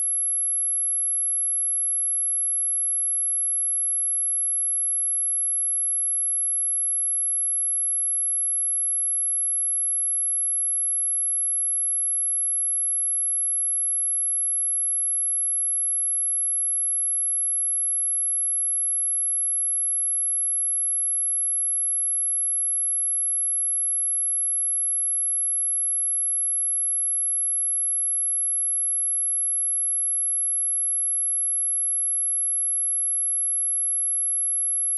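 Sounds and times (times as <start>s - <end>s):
high-pitched sine test tone: 0.0s - 2.9s, 10.8s - 34.9s.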